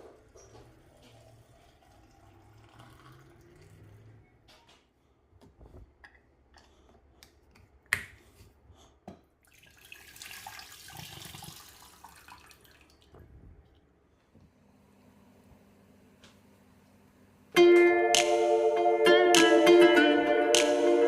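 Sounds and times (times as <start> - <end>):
water running: 0.0 - 3.8, 9.4 - 13.3.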